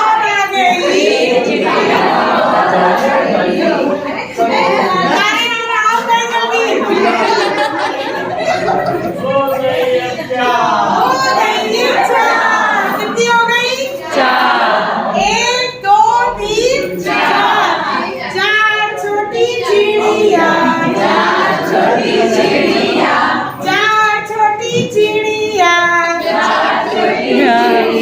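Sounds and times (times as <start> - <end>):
children singing: 0.0 - 5.4, 6.6 - 28.0
woman singing: 27.3 - 28.0.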